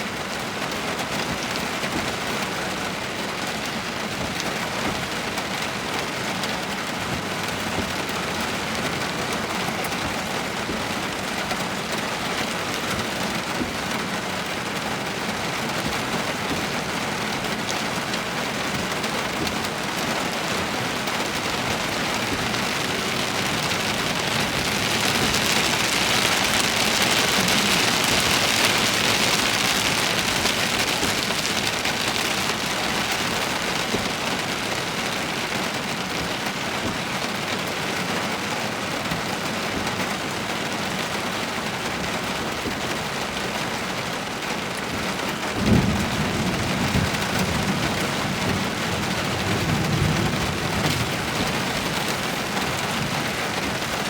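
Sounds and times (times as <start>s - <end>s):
heavy rain pouring: 0.0s - 54.0s
thunder clap rumbling: 15.1s - 37.8s, 45.5s - 54.0s.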